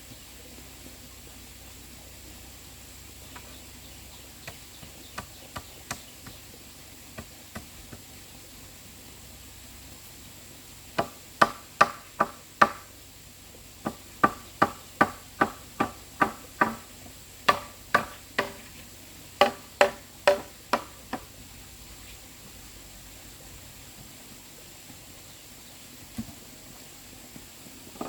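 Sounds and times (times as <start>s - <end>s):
sharp knocks: 11.0s - 12.9s, 13.8s - 16.9s, 17.5s - 18.7s, 19.4s - 21.3s.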